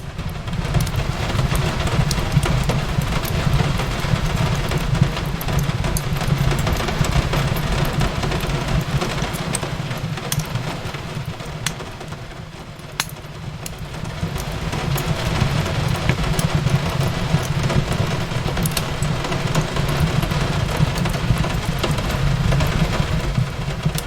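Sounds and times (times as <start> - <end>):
fireplace crackling and popping: 0.0 - 24.0
rain on a window: 0.0 - 24.0
steady low rumble: 13.5 - 24.0.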